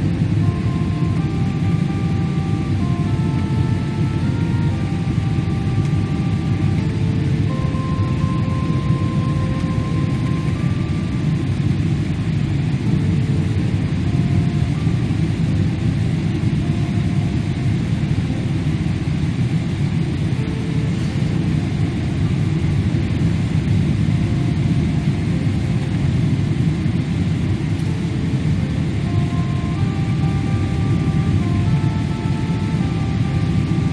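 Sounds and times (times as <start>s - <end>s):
airliner cabin jet engine rumble: 0.0s - 33.9s.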